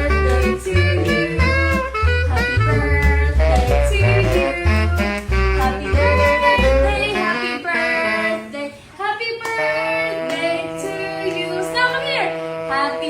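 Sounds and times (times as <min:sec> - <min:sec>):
heavy bass beat: 0:00.0 - 0:07.2
high singing voice: 0:00.0 - 0:13.0.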